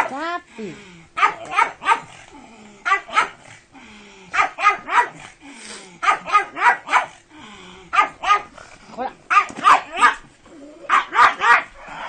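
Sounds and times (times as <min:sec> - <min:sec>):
dog barking: 0:01.2 - 0:02.2, 0:02.8 - 0:03.4, 0:04.3 - 0:05.3, 0:06.0 - 0:07.2, 0:07.9 - 0:08.5, 0:09.3 - 0:10.2, 0:10.9 - 0:11.8.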